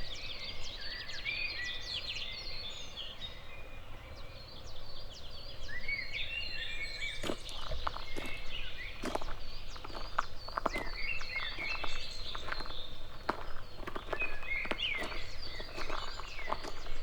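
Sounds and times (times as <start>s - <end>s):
songbirds singing: 0.0s - 17.0s
footsteps on a path: 6.8s - 17.0s.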